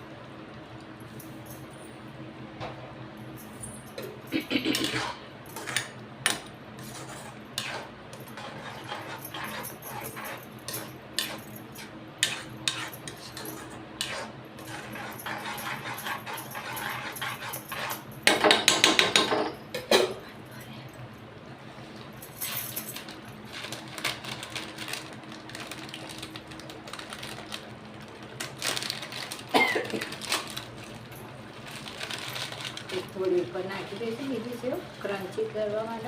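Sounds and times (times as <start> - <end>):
metal spoon scraping a pot: 6.8 - 18.1.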